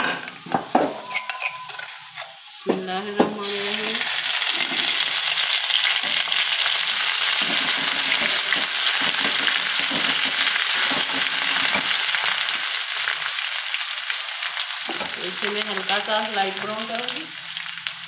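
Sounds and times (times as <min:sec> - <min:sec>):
metal spatula scraping pan: 0:00.0 - 0:03.2, 0:04.4 - 0:12.0
hot oil sizzling: 0:00.3 - 0:18.0.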